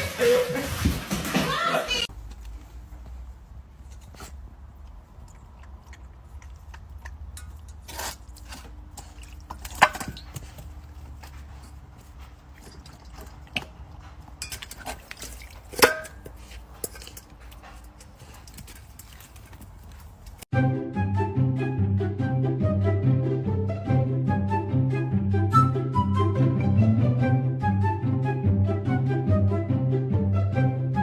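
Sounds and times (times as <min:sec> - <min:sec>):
metal bowl clinking on concrete: 0:06.4 - 0:11.0, 0:12.5 - 0:19.2.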